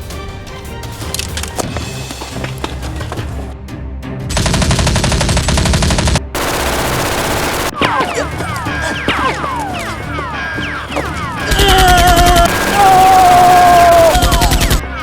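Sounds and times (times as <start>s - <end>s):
background music: 0.0s - 15.0s
automatic gunfire: 4.3s - 8.3s, 11.6s - 14.8s.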